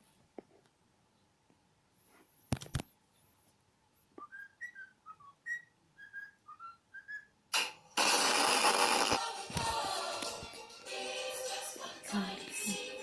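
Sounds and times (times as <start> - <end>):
whistled chirping tune: 4.2 - 7.4
loud burst of noise: 7.6 - 9.2.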